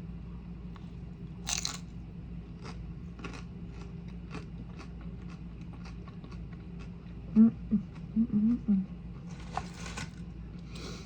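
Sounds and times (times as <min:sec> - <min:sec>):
chewing crunchy chip: 0:00.8 - 0:07.2.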